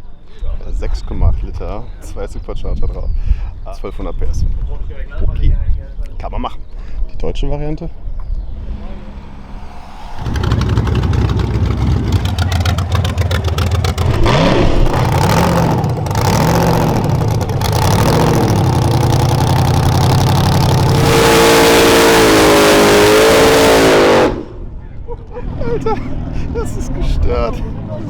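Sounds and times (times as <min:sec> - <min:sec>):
drag car engine revving: 0:08.5 - 0:24.6.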